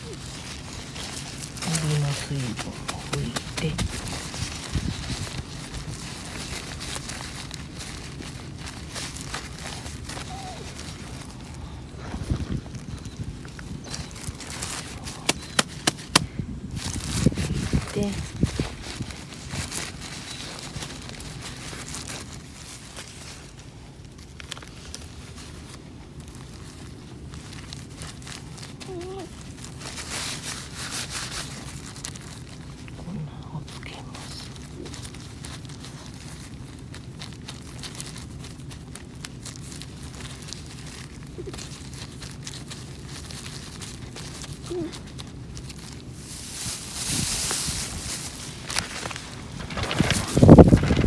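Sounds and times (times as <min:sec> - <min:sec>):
wind rumble on microphone: 0:02.6 - 0:08.6, 0:09.9 - 0:21.9, 0:46.6 - 0:48.4, 0:49.2 - 0:51.0
campfire crackling and popping: 0:14.4 - 0:16.4
steady low rumble: 0:45.2 - 0:51.0.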